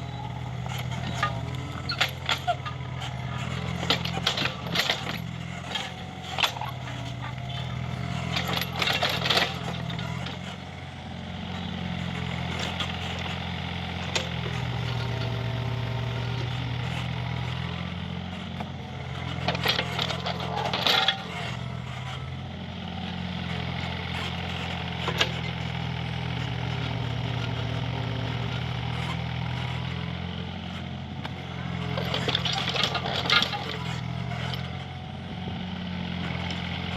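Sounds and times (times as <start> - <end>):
metallic clanking and scraping: 0.0 - 10.7, 19.0 - 22.3, 31.7 - 34.9
excavator diesel engine running: 0.0 - 36.9.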